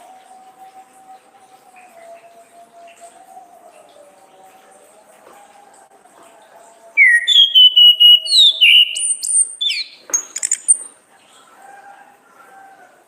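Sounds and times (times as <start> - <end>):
thrush whistling song: 7.0 - 10.9.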